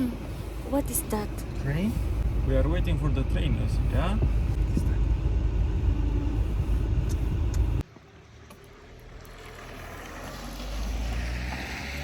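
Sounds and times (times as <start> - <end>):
low rumble: 0.1 - 7.8.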